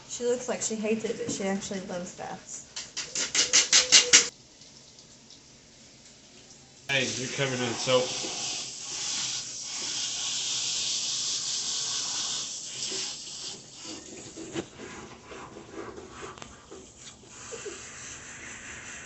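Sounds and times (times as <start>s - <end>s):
water spraying into bathtub: 2.9s - 19.0s
rubbing: 13.8s - 19.0s.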